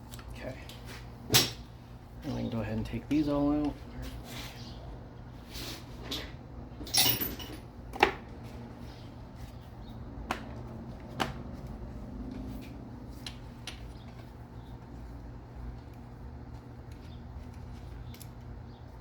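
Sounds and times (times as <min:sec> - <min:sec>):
clinks of engine parts handled: 0:06.0 - 0:07.7.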